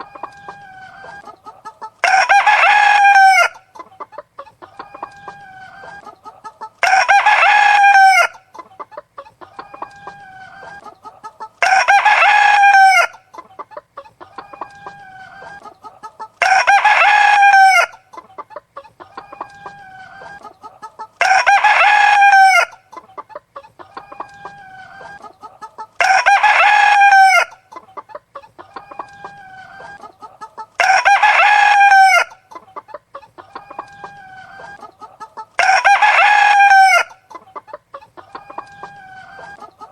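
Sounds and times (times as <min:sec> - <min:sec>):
chicken clucking: 0:00.0 - 0:39.9
rooster crowing: 0:02.0 - 0:03.6, 0:06.8 - 0:08.4, 0:11.6 - 0:13.2, 0:16.4 - 0:18.0, 0:21.2 - 0:22.8, 0:26.0 - 0:27.6, 0:30.8 - 0:32.4, 0:35.6 - 0:37.2.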